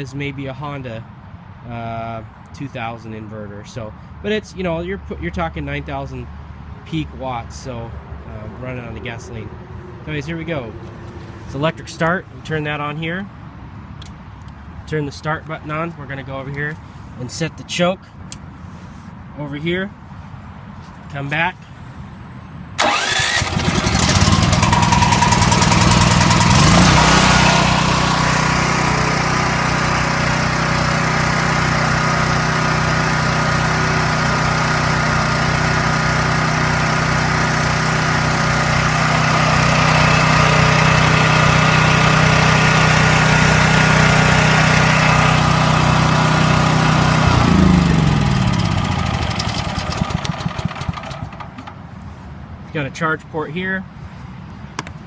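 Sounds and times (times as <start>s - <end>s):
generator engine starting and running: 22.8s - 51.9s.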